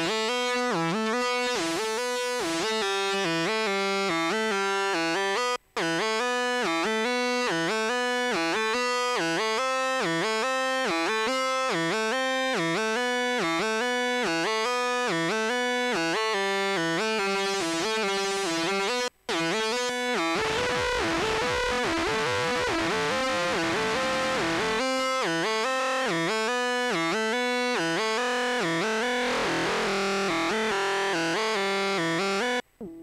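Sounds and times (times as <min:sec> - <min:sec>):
synthesizer trance riff: 0:17.2 - 0:32.2.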